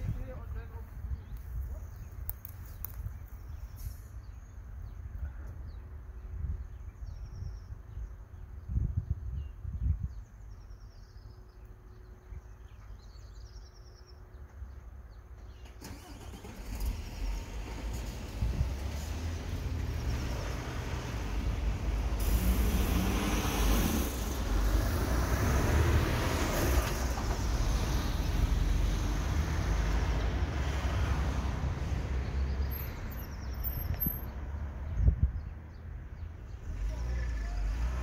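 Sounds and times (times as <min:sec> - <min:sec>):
vehicle engine rumbling: 0:14.3 - 0:38.0.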